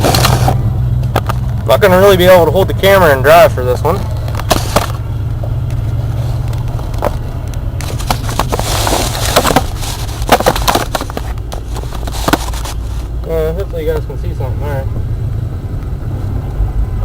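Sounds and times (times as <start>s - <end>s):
engine low drone: 0.0s - 17.0s
knocks and rattles: 4.2s - 12.8s.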